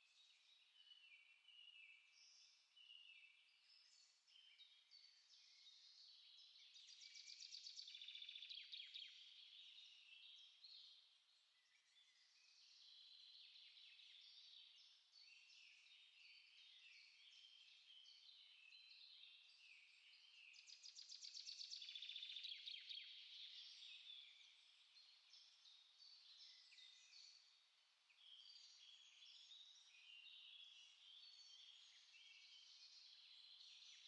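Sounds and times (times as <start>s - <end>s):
small songbirds singing: 0.0s - 34.0s.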